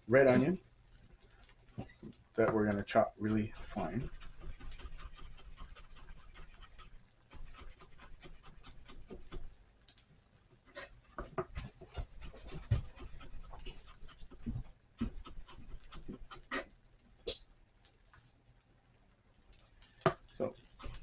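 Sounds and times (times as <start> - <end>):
knife chopping on cutting board: 3.3 - 9.6, 11.2 - 16.7.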